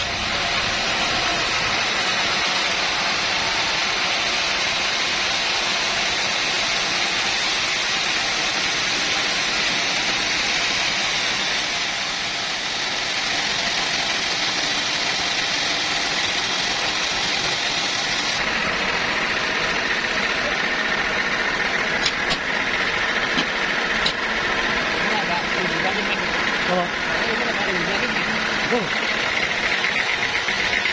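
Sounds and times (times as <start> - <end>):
sawmill machinery running: 0.0 - 30.9
sharp clicks or knocks: 22.0 - 22.5.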